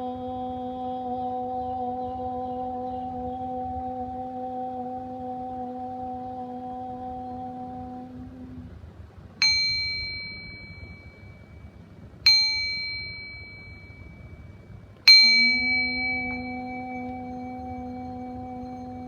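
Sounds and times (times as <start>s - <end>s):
deep singing-bowl tone: 0.0s - 8.7s, 9.4s - 19.0s
small high-pitched bell strikes: 9.4s - 11.6s, 12.3s - 19.0s.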